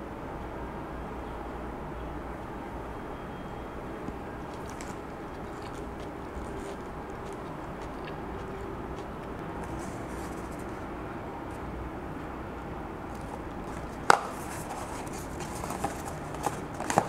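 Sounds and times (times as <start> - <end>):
chewing food: 4.0 - 10.8
cardboard box handling: 13.2 - 17.0.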